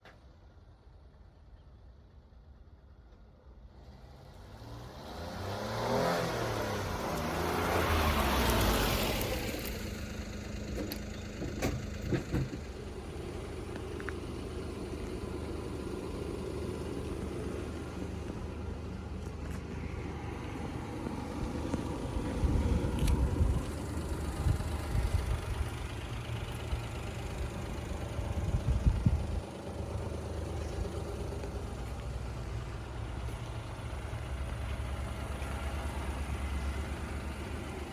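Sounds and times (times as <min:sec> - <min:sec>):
truck engine starting and revving: 0:03.7 - 0:37.9
engine idling: 0:09.1 - 0:37.9.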